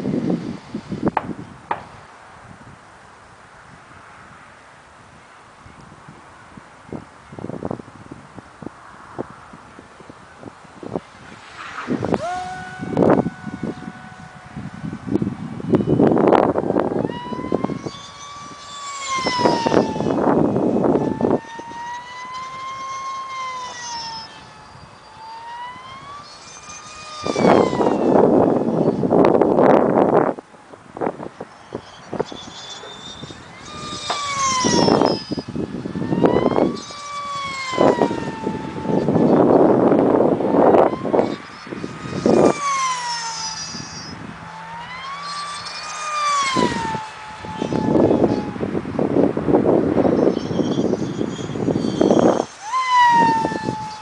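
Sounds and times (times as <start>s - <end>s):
model plane motor whining: 0.0s - 2.1s, 6.8s - 54.0s
rush of air noise: 0.0s - 54.0s
loud rushing noise: 10.8s - 17.0s.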